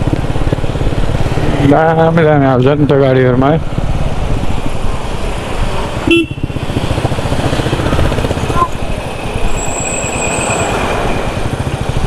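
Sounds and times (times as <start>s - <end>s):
motorcycle engine running: 0.0s - 9.3s, 10.7s - 12.0s
vehicle horn toot: 6.1s - 6.5s.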